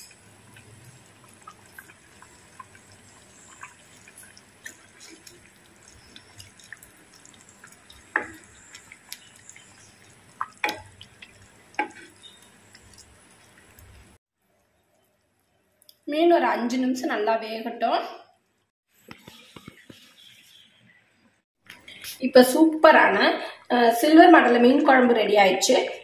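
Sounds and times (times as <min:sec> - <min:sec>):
ladle stirring curry: 0:00.5 - 0:14.1.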